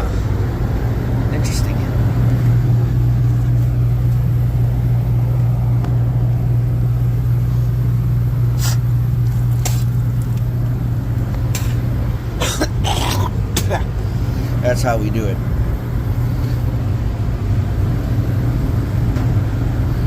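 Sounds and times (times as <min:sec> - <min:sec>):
hvac unit humming: 0:00.0 - 0:20.0.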